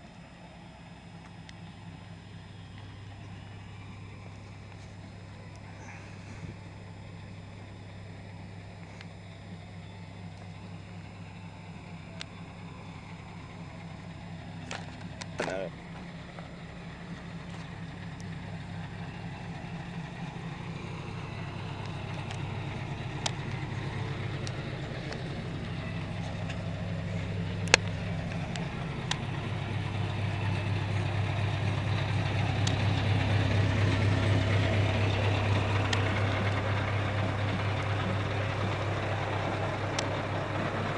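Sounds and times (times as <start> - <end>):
diesel truck engine running: 0.0 - 40.9
sharp clicks: 27.6 - 30.2.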